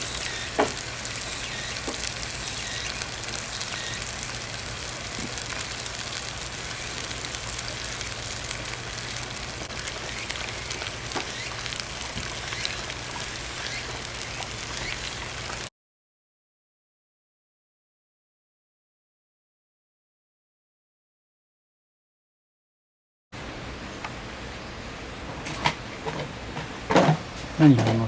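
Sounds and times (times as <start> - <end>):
campfire hissing and crackling: 0.0 - 15.7.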